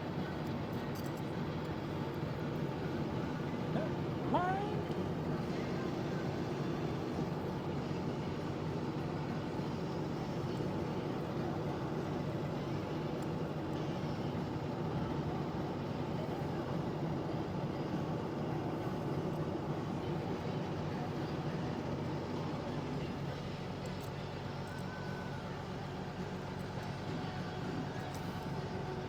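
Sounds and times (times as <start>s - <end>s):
steady engine drone: 0.0s - 29.0s.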